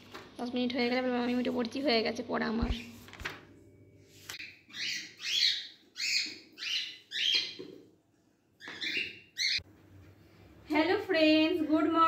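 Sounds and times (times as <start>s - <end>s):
bird chirping: 4.4s - 7.8s, 8.6s - 9.6s.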